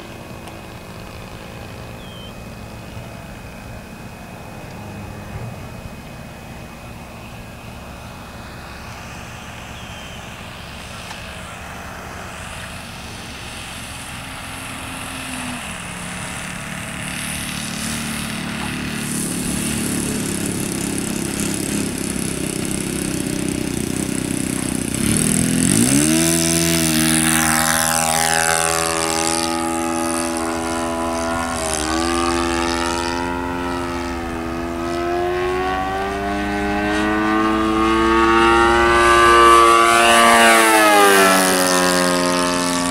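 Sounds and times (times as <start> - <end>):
model plane engine: 0.0 - 42.9.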